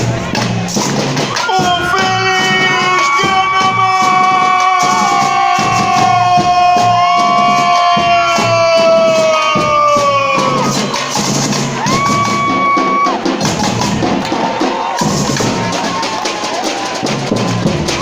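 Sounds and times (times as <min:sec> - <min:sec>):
samba drums: 0:00.0 - 0:18.0.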